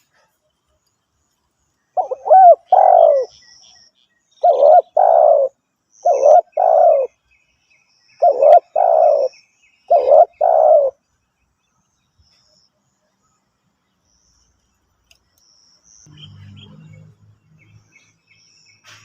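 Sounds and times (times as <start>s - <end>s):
dove cooing: 2.0s - 3.4s, 4.4s - 7.2s, 8.2s - 9.3s, 9.9s - 11.0s.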